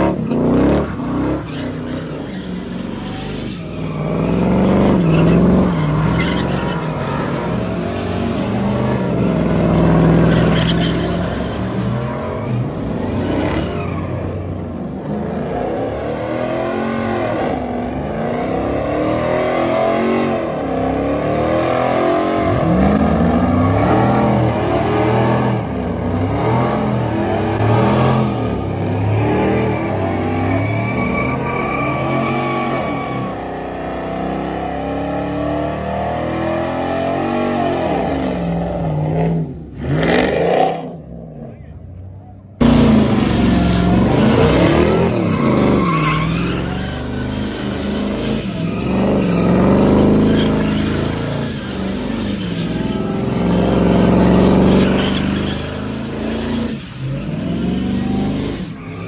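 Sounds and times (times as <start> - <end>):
car engine revving: 42.5 - 58.9.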